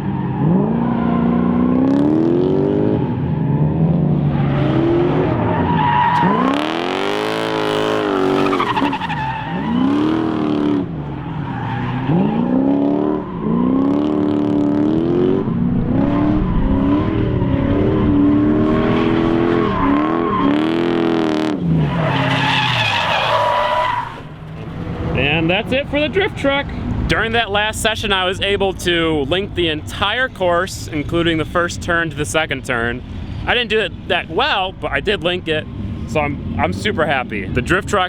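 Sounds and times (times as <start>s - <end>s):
tires squealing and skidding: 0.0s - 28.6s
truck engine revving: 0.0s - 38.0s.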